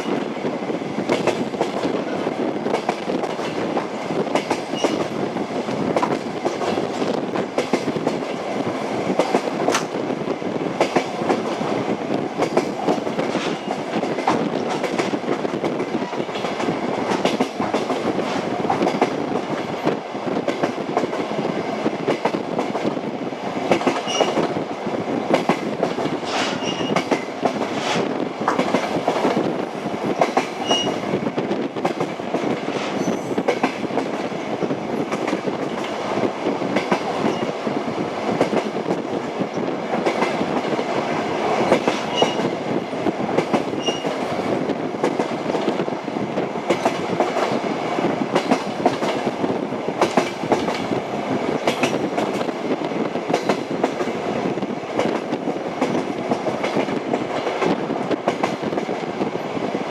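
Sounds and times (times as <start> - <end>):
train wheels rumbling on rails: 0.0 - 59.9
clickety-clack knocks: 1.0 - 2.0, 2.6 - 8.4, 9.1 - 10.0, 10.8 - 11.6, 12.4 - 21.3, 22.0 - 23.0, 23.7 - 24.6, 25.3 - 27.8, 28.4 - 31.0, 31.7 - 34.3, 35.0 - 36.0, 36.7 - 37.5, 38.3 - 41.0, 41.6 - 42.6, 43.3 - 45.9, 46.7 - 49.4, 50.0 - 51.0, 51.6 - 59.1
high wheel squeaks: 26.6 - 27.0.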